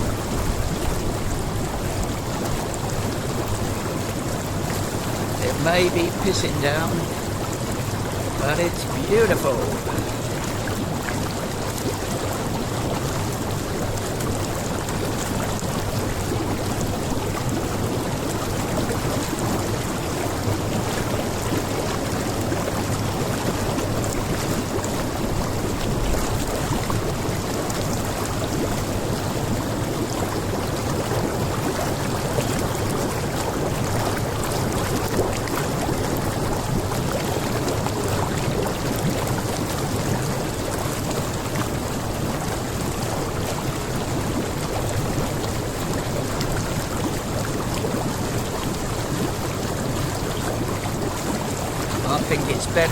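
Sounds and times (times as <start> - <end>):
jacuzzi jets bubbling water: 0.0 - 52.9
heavy rain falling: 51.9 - 52.9.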